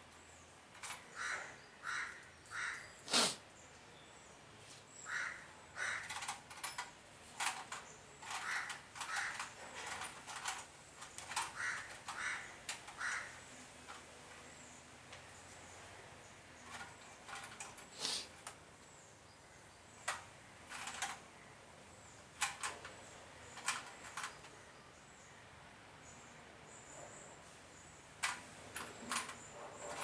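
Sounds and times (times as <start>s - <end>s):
bird cawing: 1.1s - 2.9s, 5.0s - 6.1s, 8.4s - 9.5s, 11.5s - 13.4s.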